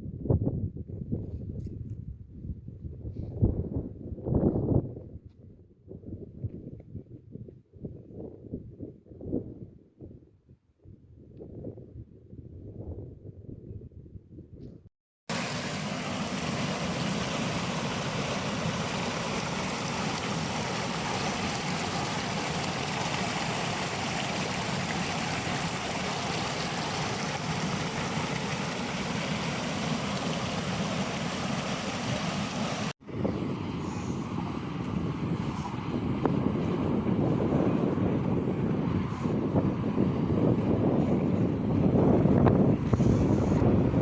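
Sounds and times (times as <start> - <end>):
water rushing in a stream: 15.3 - 33.0.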